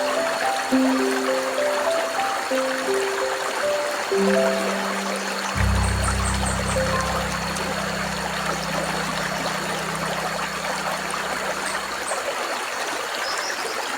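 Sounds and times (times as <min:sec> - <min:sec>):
river water rushing: 0:00.0 - 0:13.9
low hum: 0:04.5 - 0:12.3.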